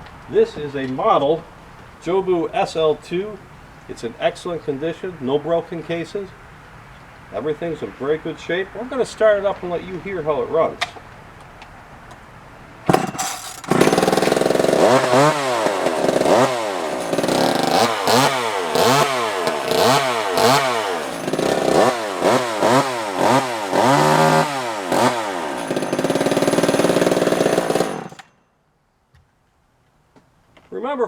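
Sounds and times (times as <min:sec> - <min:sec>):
two-stroke chainsaw engine revving: 0:12.9 - 0:28.3
chainsaw pull start: 0:12.9 - 0:28.4.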